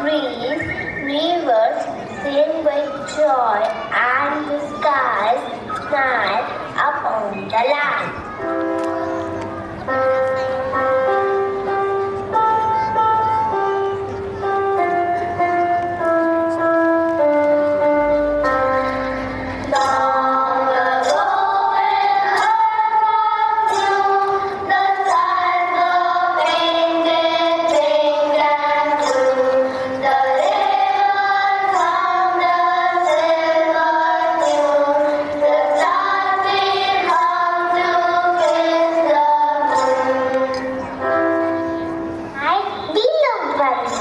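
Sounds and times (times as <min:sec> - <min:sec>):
musical accompaniment with beat: 0:08.1 - 0:42.9
high voices singing: 0:15.8 - 0:42.2.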